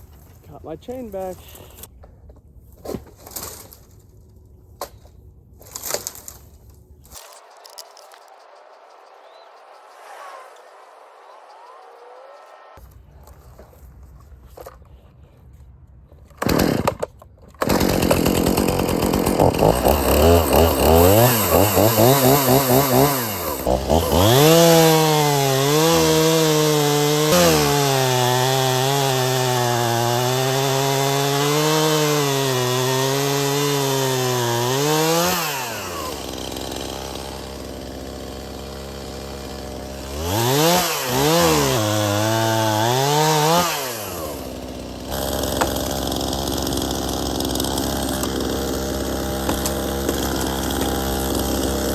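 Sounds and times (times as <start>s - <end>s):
chainsaw revving and cutting wood: 7.2s - 12.8s, 16.4s - 51.9s.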